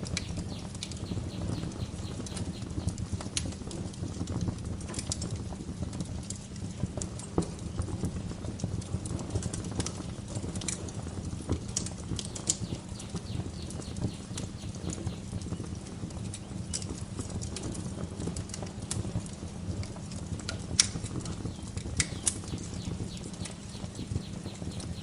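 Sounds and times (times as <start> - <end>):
birds chirping faintly: 0.0 - 3.0, 11.6 - 15.7, 21.2 - 25.0
steady low rumble: 0.0 - 3.1, 11.1 - 15.5, 21.0 - 25.0
wood fire crackling and popping: 0.0 - 25.0.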